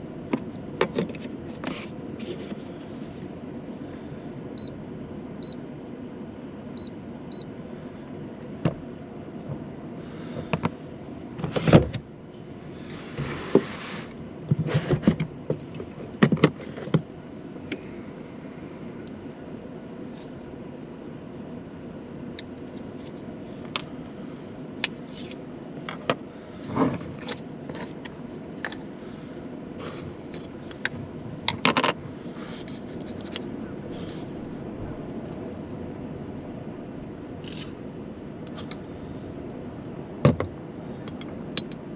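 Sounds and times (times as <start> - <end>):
steady low hum: 0.0 - 41.9
clicks knocks and light scrapes: 29.9 - 34.3.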